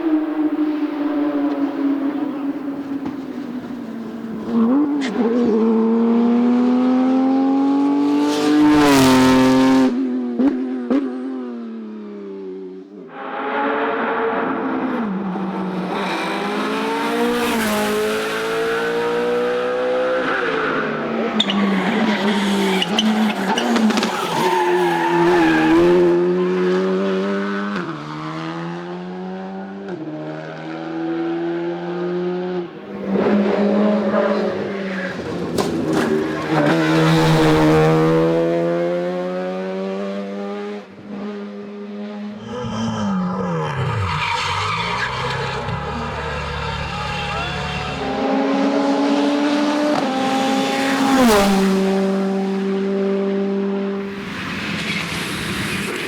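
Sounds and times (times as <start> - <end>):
racing car engine at high revs: 0.0 - 12.6, 13.2 - 56.0
tyres squealing: 21.0 - 26.1, 42.4 - 48.4.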